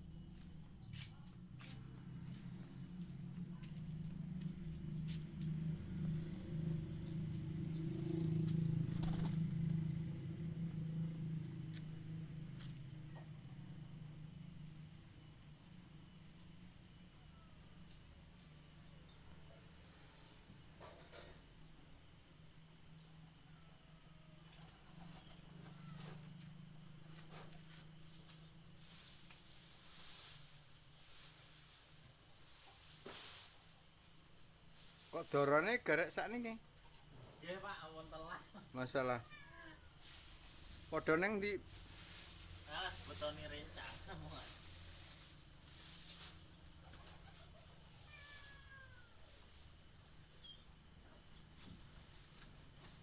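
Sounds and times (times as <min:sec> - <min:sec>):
low hum: 0:00.0 - 0:15.4
insects chirring: 0:00.0 - 0:53.0
hissing high buzz: 0:37.4 - 0:46.8
small chirp: 0:46.8 - 0:53.0.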